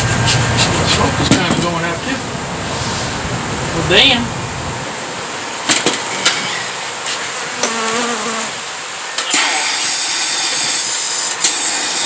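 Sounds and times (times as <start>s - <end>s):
honey bees buzzing: 0.0s - 12.0s
bee buzzing past closely: 6.4s - 8.9s.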